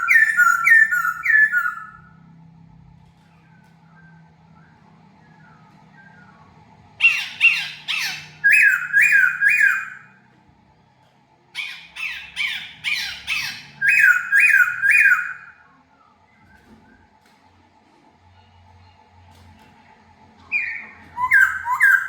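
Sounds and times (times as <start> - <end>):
bird calling harsh notes: 0.0 - 2.2, 7.0 - 10.2, 11.6 - 15.6, 20.5 - 22.0.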